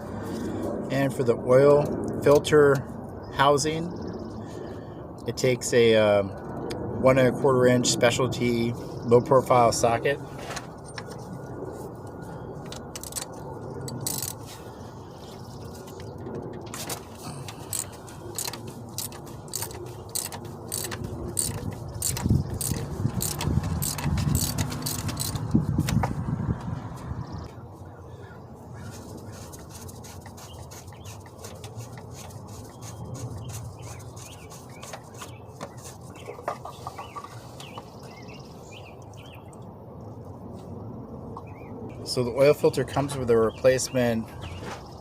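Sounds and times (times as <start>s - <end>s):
socket ratchet clicking: 12.8s - 14.4s, 17.6s - 26.0s.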